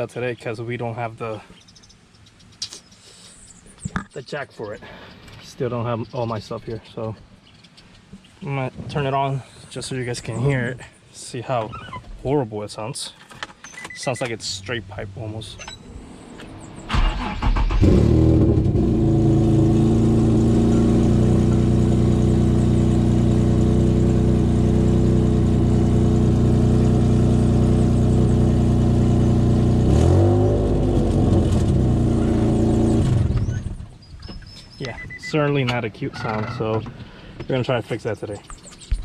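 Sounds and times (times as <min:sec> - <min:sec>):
car engine starting and idling: 0:13.7 - 0:33.9
engine revving: 0:16.6 - 0:33.8.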